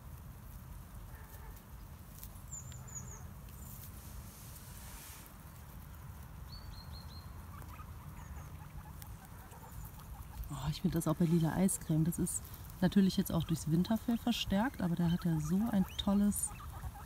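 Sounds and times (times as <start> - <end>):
small bird chirping: 2.3 - 3.8, 5.8 - 11.5, 12.1 - 17.0.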